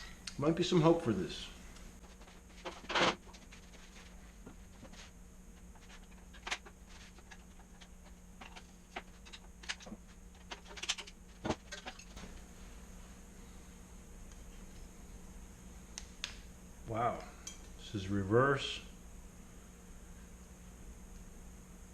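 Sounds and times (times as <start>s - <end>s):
metal parts clicking and knocking: 5.8s - 12.2s.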